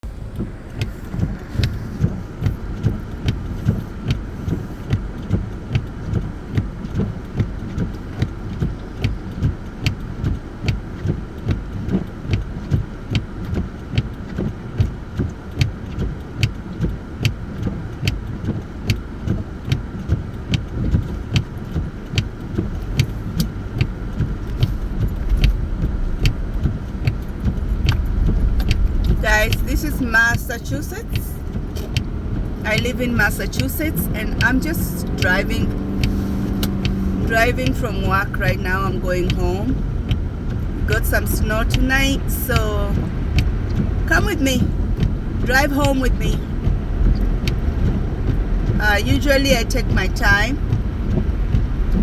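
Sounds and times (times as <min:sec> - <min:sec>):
engine and road rumble: 0:00.0 - 0:52.0
regular clicking: 0:00.3 - 0:30.2, 0:31.4 - 0:52.0.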